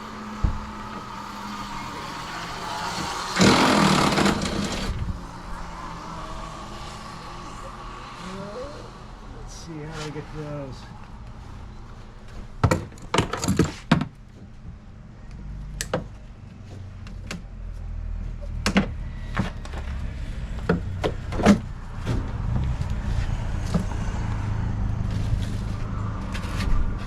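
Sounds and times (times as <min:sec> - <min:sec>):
knocks and clatter of tools: 0:12.6 - 0:14.2.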